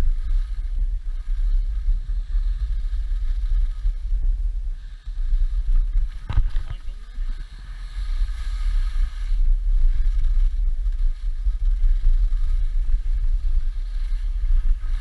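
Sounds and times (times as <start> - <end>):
skis sliding on snow: 0.0 - 15.0
wind buffeting the microphone: 0.0 - 15.0.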